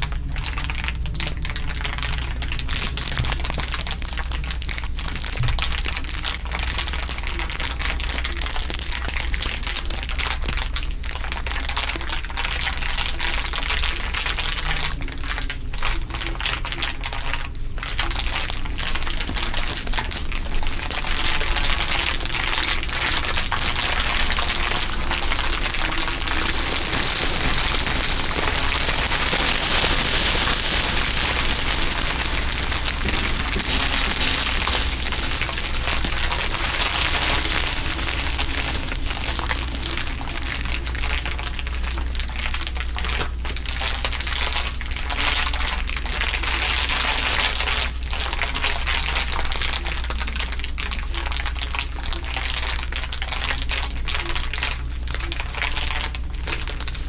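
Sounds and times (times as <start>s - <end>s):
dense crinkling crackle: 0.0s - 57.0s
steady low hum: 14.6s - 45.6s.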